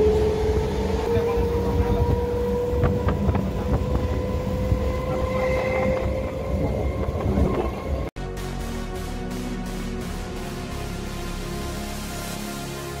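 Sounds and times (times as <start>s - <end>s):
train wheels rumbling on track: 0.0s - 8.1s.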